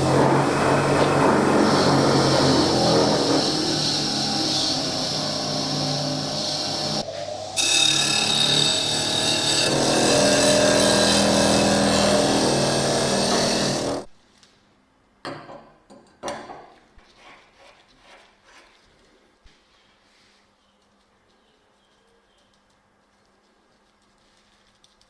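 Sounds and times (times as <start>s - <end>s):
power tool running: 0.0s - 14.1s.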